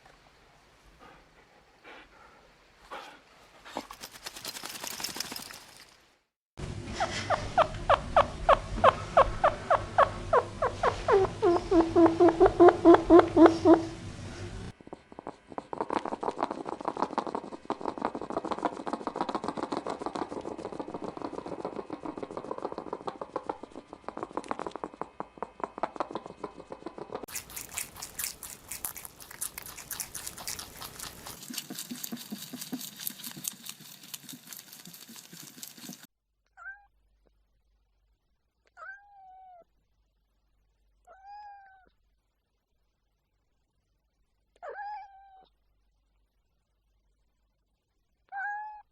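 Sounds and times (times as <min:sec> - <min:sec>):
crackling rustling noise: 0:27.3 - 0:36.1
cat meowing: 0:41.1 - 0:41.9, 0:44.6 - 0:45.5, 0:48.3 - 0:48.9.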